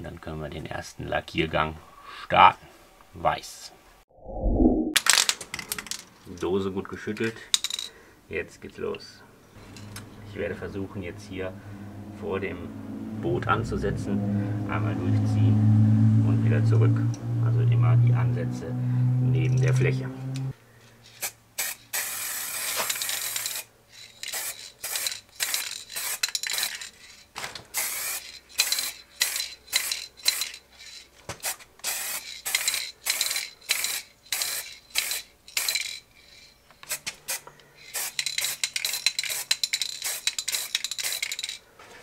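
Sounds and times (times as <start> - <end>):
spray paint can hissing: 21.1 - 26.7, 27.8 - 30.5, 31.4 - 41.5.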